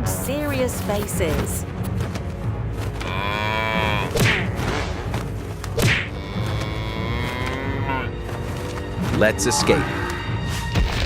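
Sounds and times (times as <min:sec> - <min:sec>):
cow mooing: 0:03.0 - 0:05.2, 0:06.1 - 0:08.2.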